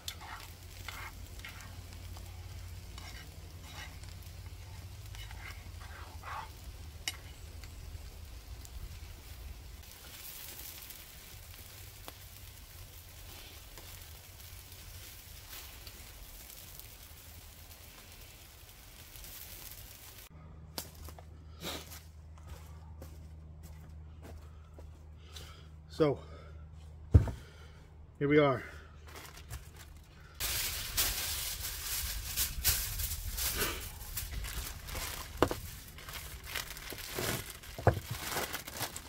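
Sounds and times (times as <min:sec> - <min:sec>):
metal utensils clicking and scraping: 0:00.0 - 0:07.4
meat sizzling on grill: 0:00.0 - 0:20.3, 0:30.4 - 0:38.1.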